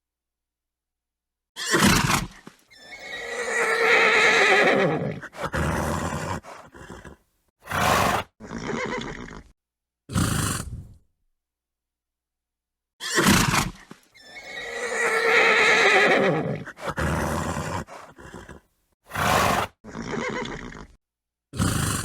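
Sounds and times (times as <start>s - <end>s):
horse whinnying: 1.6s - 9.5s, 13.0s - 21.0s
horse snorting: 1.7s - 9.5s, 10.1s - 11.0s, 13.1s - 21.0s, 21.6s - 22.0s.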